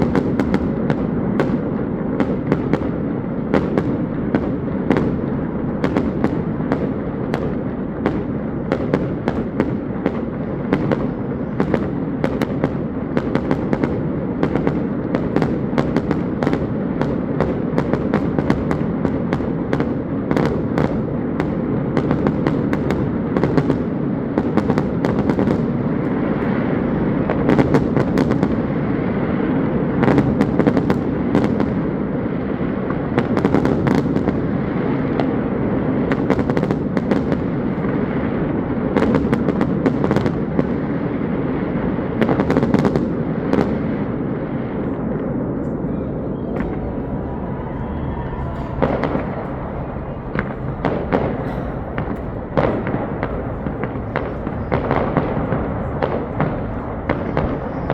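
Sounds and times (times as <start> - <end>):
fireworks bangs and crackles: 0.0 - 57.9
continuous rumble: 44.6 - 57.9.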